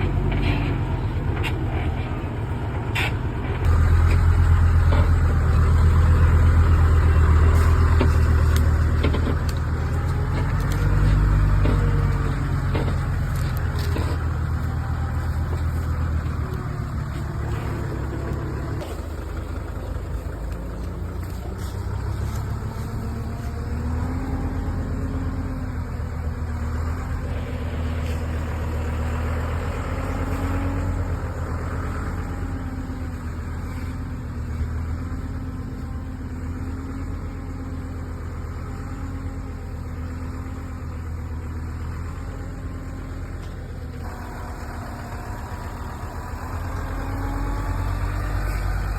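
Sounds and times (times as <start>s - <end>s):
heavy machine engine running: 0.0s - 48.9s.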